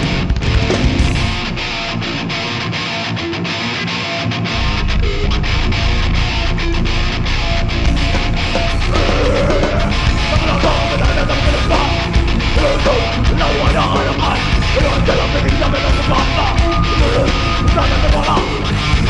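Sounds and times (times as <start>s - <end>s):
hardcore band playing: 0.0s - 19.0s
shouted vocals: 8.8s - 19.0s.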